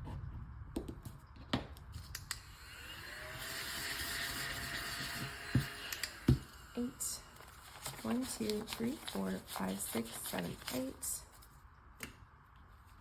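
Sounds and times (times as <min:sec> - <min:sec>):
small vacuum whirring: 0:02.3 - 0:08.6.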